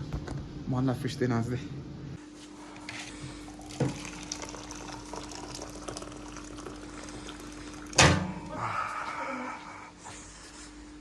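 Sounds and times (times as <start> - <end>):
steady hum: 0.0 - 11.0
water running in a sink: 3.5 - 8.5.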